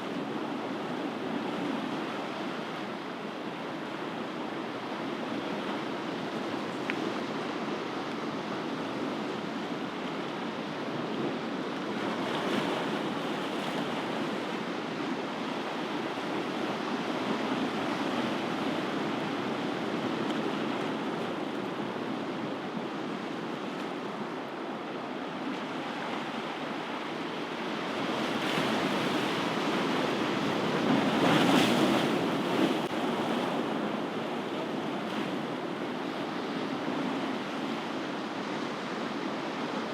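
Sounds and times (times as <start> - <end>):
ocean waves breaking: 15.7 - 39.8.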